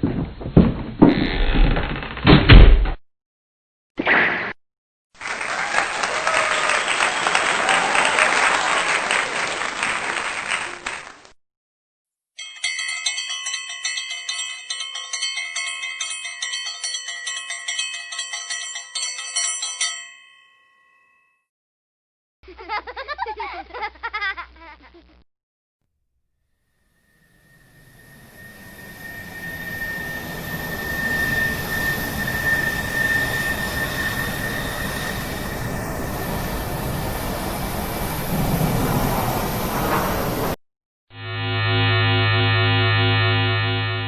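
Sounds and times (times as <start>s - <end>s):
applause-like clapping: 5.2s - 11.4s
ringing chime tones: 27.0s - 35.8s.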